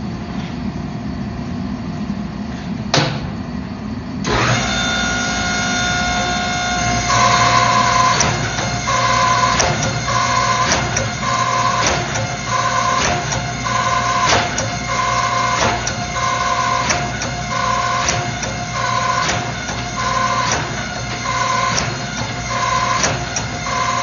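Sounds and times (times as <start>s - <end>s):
machinery hum: 0.0s - 24.0s
sharp clicks and knocks: 8.0s - 13.5s, 14.2s - 14.8s, 16.8s - 23.7s.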